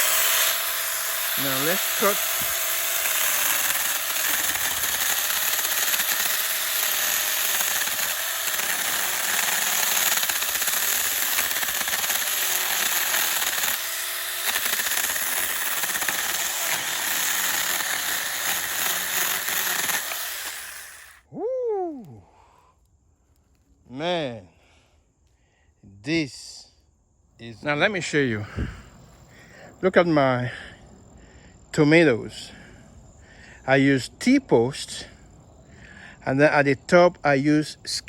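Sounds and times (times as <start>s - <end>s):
chain rasping through wood: 0.0s - 21.2s
chainsaw motor whine: 0.0s - 21.3s.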